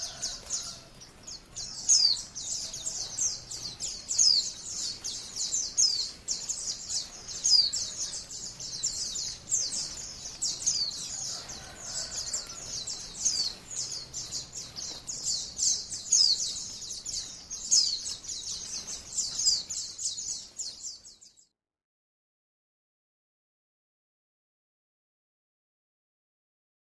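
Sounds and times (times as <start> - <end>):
bird high chirps and trills: 0.0 - 21.5.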